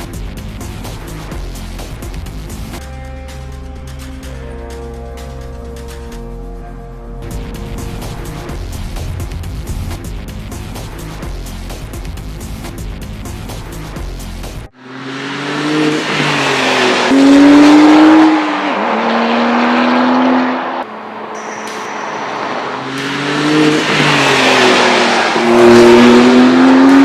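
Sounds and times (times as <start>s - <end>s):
car engine accelerating hard: 14.7s - 21.3s, 22.1s - 27.0s.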